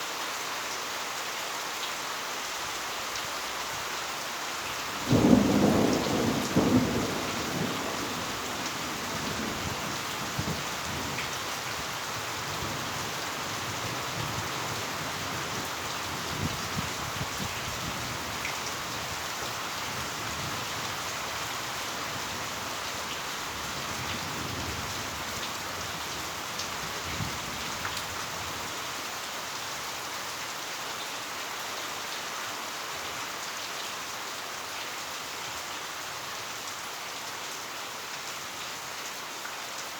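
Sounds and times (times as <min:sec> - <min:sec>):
heavy rain: 0:00.0 - 0:39.9
thunder rumbling: 0:05.0 - 0:11.1.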